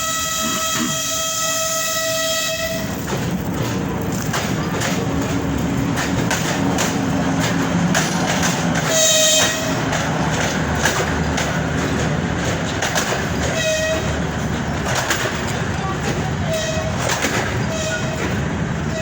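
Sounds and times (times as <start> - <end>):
train horn blast: 0.0 - 2.9, 8.8 - 9.9, 13.5 - 14.1, 16.4 - 17.0, 17.6 - 19.0
train rumbling: 0.0 - 19.0
train wheels clicking over rail joints: 0.0 - 19.0.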